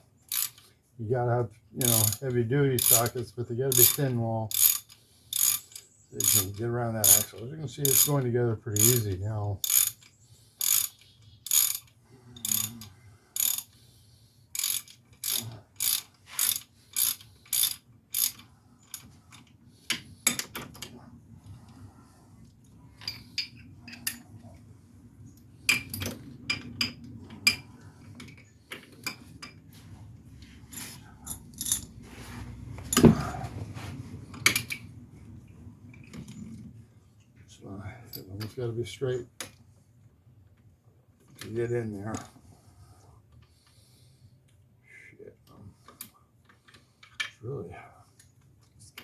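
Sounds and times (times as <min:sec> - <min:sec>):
hand ratchet clicking: 0:00.3 - 0:00.7, 0:01.8 - 0:03.1, 0:03.7 - 0:08.2, 0:08.8 - 0:13.8, 0:14.6 - 0:19.1.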